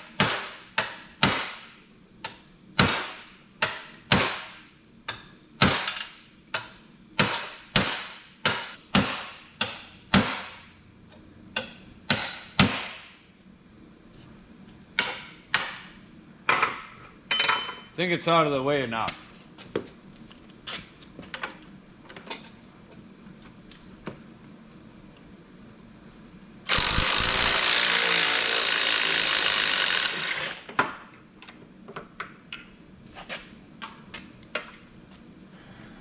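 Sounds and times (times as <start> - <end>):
tools clinking on metal: 17.3 - 17.9
power tool running: 26.7 - 30.7.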